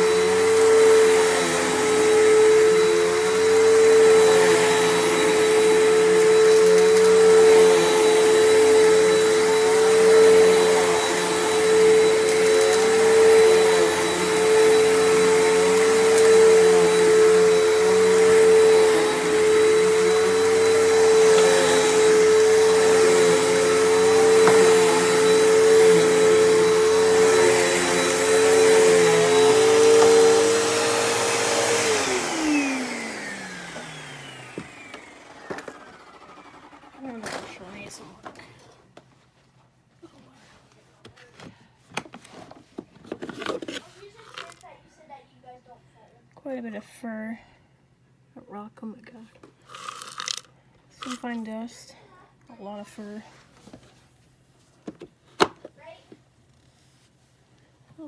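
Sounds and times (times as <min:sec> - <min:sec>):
vacuum motor spinning down: 0:00.0 - 0:37.5
vacuum cleaner on carpet: 0:00.0 - 0:38.5.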